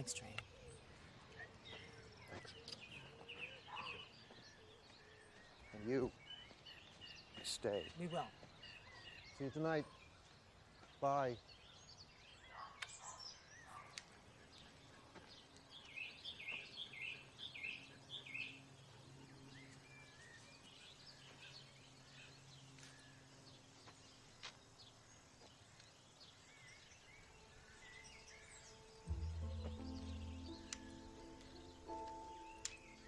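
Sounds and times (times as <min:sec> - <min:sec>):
small birds chirping: 0:00.0 - 0:33.0
music: 0:27.7 - 0:33.0.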